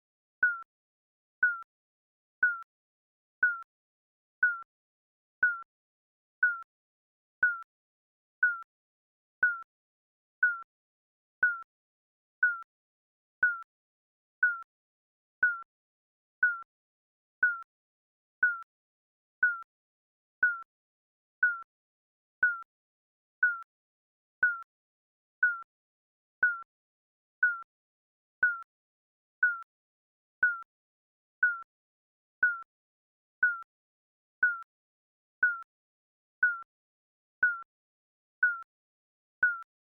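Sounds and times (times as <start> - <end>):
countdown timer beep: 0.4 - 0.6, 1.4 - 1.6, 8.4 - 8.6, 39.4 - 39.6.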